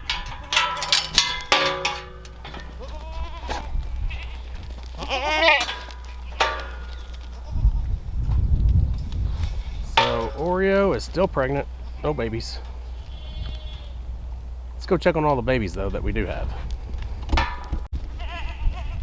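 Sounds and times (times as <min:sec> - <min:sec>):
goats bleating: 0:02.6 - 0:08.0, 0:11.8 - 0:14.1, 0:18.2 - 0:19.0.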